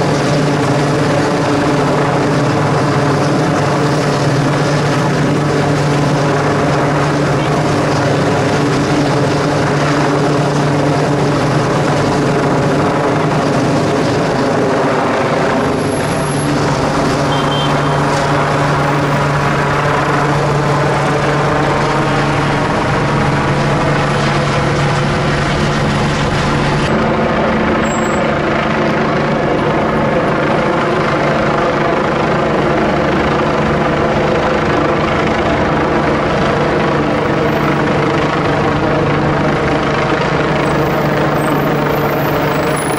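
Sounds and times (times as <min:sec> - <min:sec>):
helicopter hovering drone: 0:00.0 - 0:42.9.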